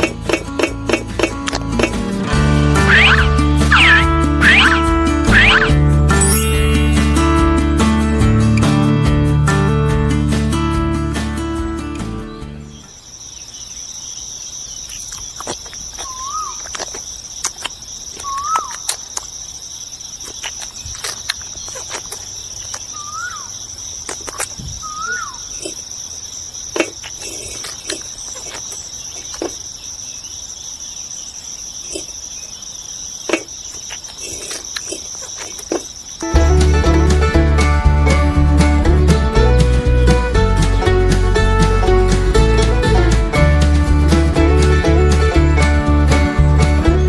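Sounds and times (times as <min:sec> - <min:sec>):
bird chirps: 0:02.8 - 0:07.5, 0:12.3 - 0:37.0
high insect trilling: 0:02.8 - 0:07.5, 0:12.9 - 0:36.3.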